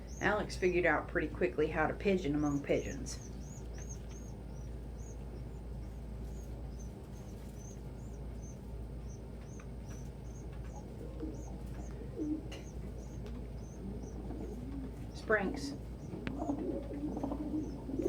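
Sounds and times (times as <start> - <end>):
high thin bird chirps: 3.1 - 14.2
pigeon cooing: 5.8 - 18.0.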